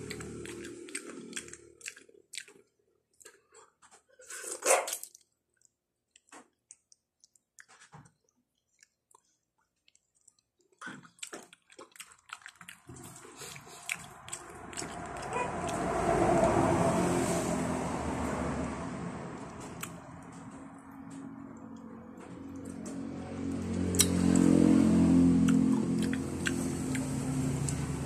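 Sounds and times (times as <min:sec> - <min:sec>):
chewing: 0:00.0 - 0:16.6, 0:19.8 - 0:21.8, 0:23.8 - 0:24.6, 0:25.4 - 0:27.9
lip smacks and clicks: 0:05.0 - 0:07.9, 0:08.8 - 0:15.8, 0:19.8 - 0:20.4, 0:23.9 - 0:24.5, 0:25.4 - 0:27.8.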